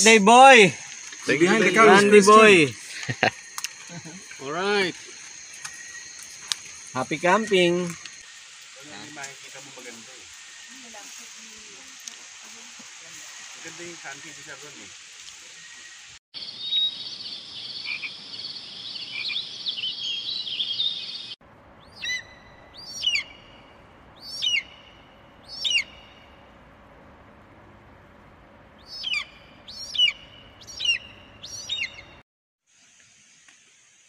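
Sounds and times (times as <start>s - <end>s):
bird calling: 0.0s - 8.2s, 15.6s - 26.4s, 28.8s - 32.2s
faint stream rushing: 0.0s - 16.2s
night frogs and insects chorus: 0.0s - 26.5s, 28.8s - 32.2s.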